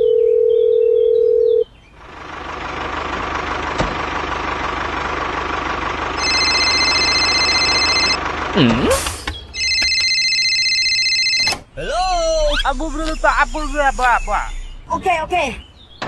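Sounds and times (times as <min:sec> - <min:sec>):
engine-like running noise: 0:01.9 - 0:10.9, 0:11.6 - 0:16.0
high electronic tones chord: 0:06.2 - 0:08.2, 0:11.8 - 0:15.0
electronic beep: 0:12.1 - 0:15.0.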